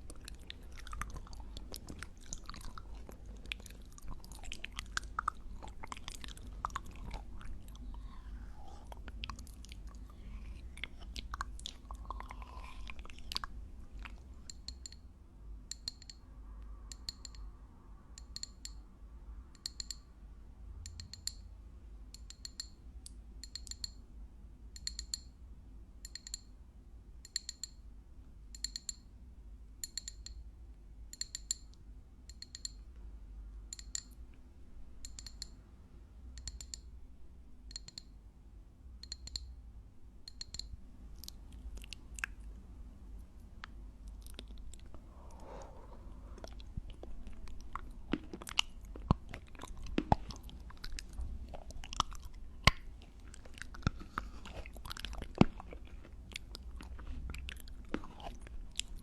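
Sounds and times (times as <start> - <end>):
wet crisp chewing: 0.0 - 14.3, 41.2 - 42.6, 43.6 - 59.0.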